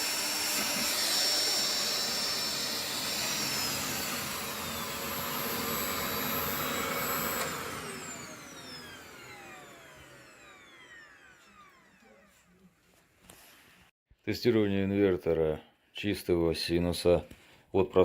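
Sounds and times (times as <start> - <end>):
vacuum cleaner motor whining: 0.0 - 12.7.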